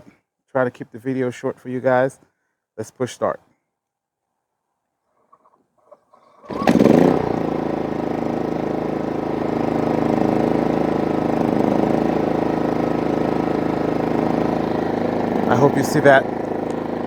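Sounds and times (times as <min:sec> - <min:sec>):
generator engine running: 0:06.4 - 0:17.0.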